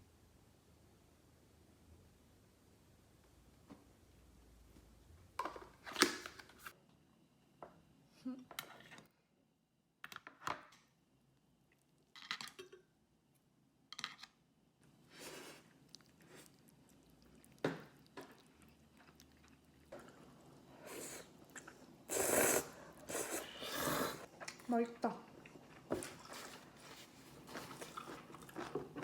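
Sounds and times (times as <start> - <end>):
person chewing and crunching food: 15.2 - 24.7, 25.3 - 29.0.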